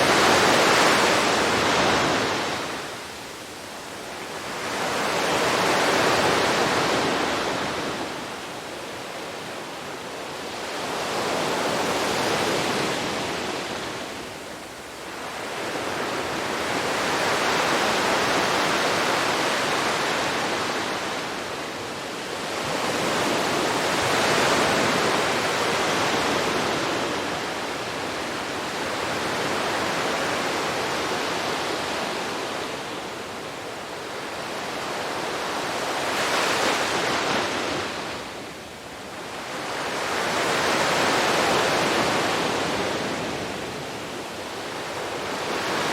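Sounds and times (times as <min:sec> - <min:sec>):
sea waves breaking on beach: 0:00.0 - 0:03.1, 0:15.0 - 0:45.9.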